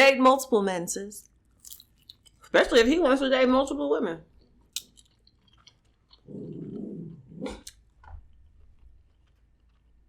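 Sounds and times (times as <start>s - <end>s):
dog growling: 6.2s - 7.7s.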